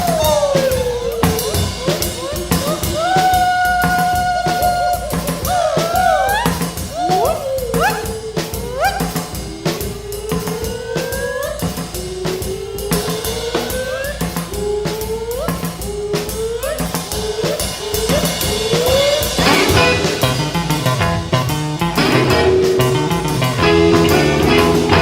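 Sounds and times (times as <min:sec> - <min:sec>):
drum-kit beat: 0:00.0 - 0:25.0
lead melody with bending notes: 0:17.0 - 0:25.0.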